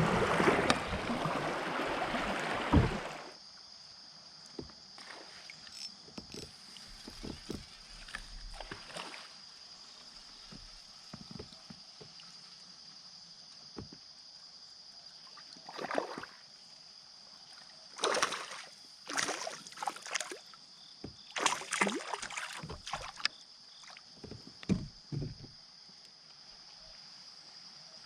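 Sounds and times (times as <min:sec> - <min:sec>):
paddle splashing in water: 0:00.0 - 0:03.4, 0:06.5 - 0:12.4, 0:15.2 - 0:16.4, 0:17.5 - 0:25.5.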